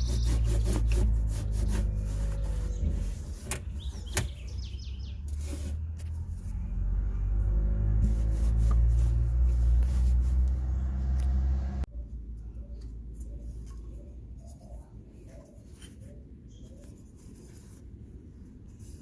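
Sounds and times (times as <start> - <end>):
low motor hum: 0.0 - 4.1, 5.7 - 13.0
rubbing and handling noises: 0.0 - 4.5, 5.2 - 6.7, 7.9 - 11.0, 12.7 - 19.0.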